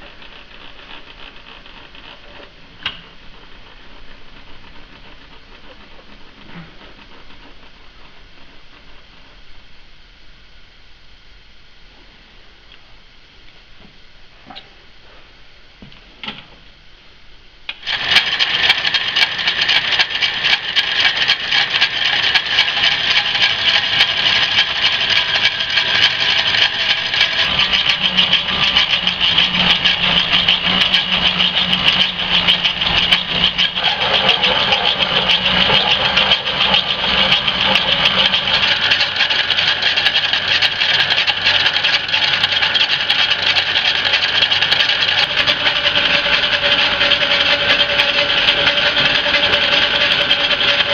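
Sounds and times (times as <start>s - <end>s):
low steady hum: 0.0s - 17.8s
metalworking machine running: 17.8s - 50.9s.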